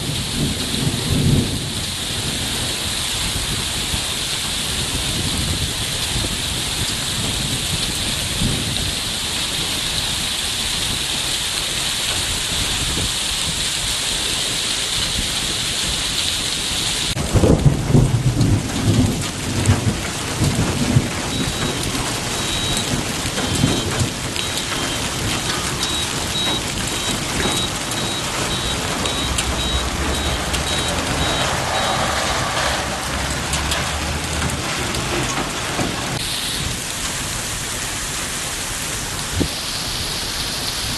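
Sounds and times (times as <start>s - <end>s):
thunderclap rolling into rumble: 0.0s - 3.8s, 17.2s - 36.2s
heavy rain falling: 0.0s - 40.9s.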